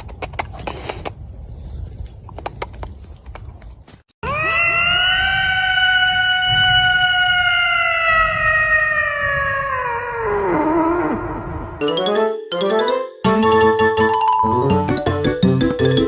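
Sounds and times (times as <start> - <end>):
animal howling: 4.2 - 11.8.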